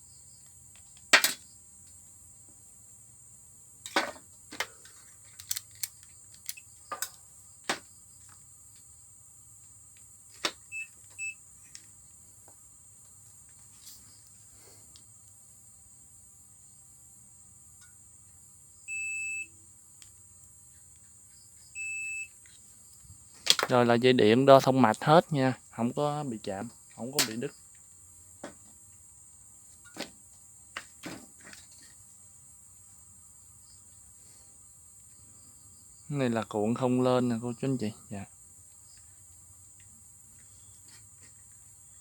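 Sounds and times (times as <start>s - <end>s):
clicks of test probes handled: 3.9s - 8.4s
multimeter continuity beeps: 10.7s - 11.4s, 18.9s - 19.6s, 21.7s - 22.4s.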